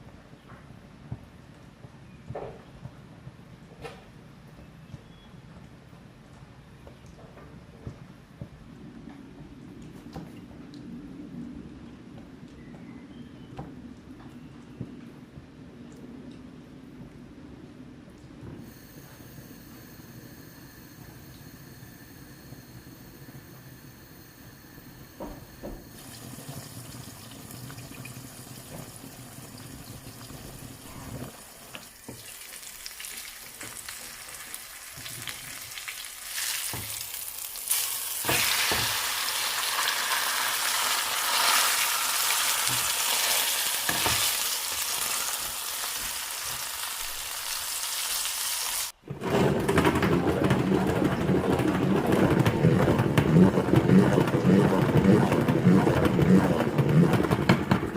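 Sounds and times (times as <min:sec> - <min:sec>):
food sizzling in a pan: 0:25.9 - 0:48.9.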